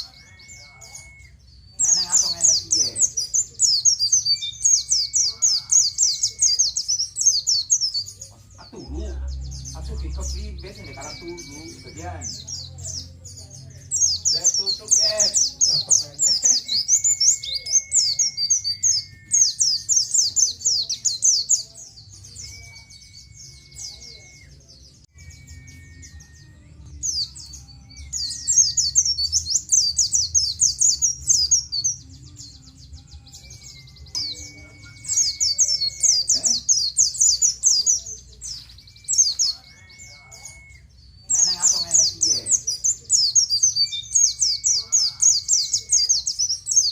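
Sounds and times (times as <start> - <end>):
bird chattering song: 0.0 - 46.9
long level whistles: 9.5 - 12.7, 15.4 - 20.9, 33.4 - 37.7.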